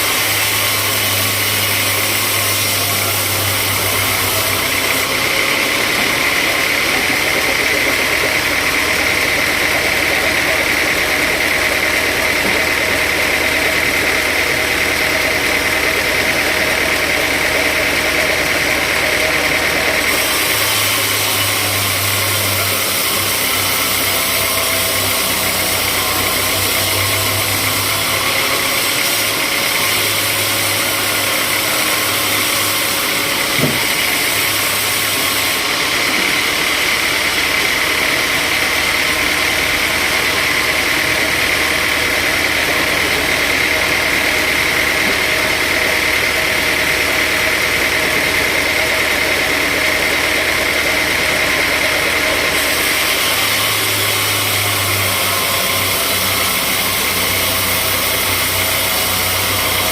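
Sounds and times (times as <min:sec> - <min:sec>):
sawmill machinery drone and hiss: 0:00.0 - 0:59.9
short knock: 0:33.5 - 0:34.0.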